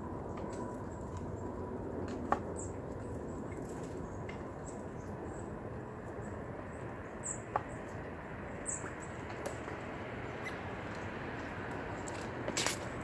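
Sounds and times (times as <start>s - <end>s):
outdoor background noise: 0.0s - 13.0s
small birds chirping: 10.3s - 11.1s.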